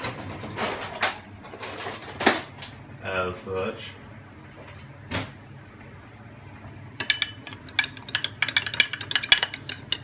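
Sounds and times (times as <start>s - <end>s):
spoon clinking against dish: 7.0s - 10.0s.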